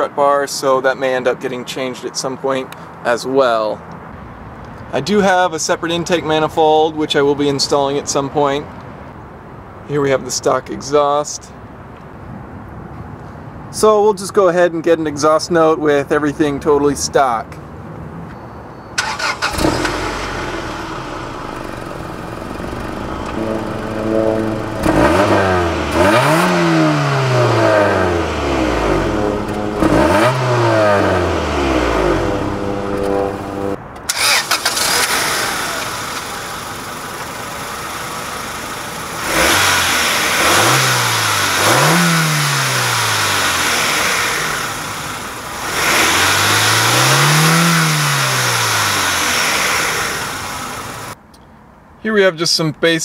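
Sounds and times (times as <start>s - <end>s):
car engine idling and revving: 19.0s - 51.2s.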